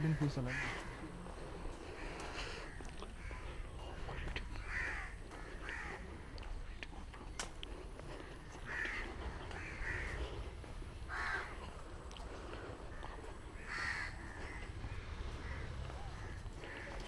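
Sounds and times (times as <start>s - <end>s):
low rumble: 6.0s - 17.0s.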